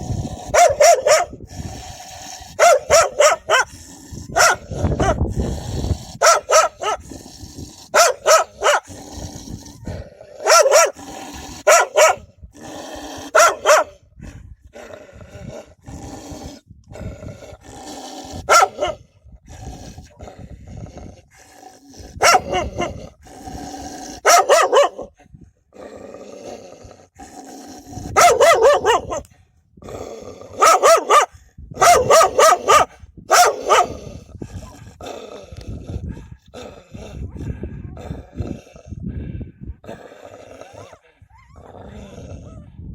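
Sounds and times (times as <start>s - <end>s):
dog barking: 0.5s - 1.4s, 2.6s - 3.7s, 4.3s - 5.2s, 6.2s - 7.0s, 8.0s - 8.9s, 10.4s - 11.0s, 11.6s - 12.2s, 13.3s - 14.0s, 18.5s - 19.0s, 22.2s - 23.0s, 24.2s - 25.1s, 28.2s - 29.2s, 30.6s - 34.0s.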